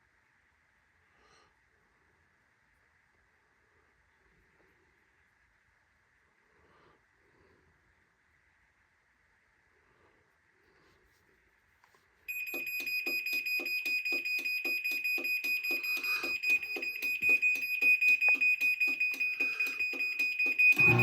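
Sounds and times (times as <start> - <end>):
shrill pulsing warning beeper: 20.4 - 21.0.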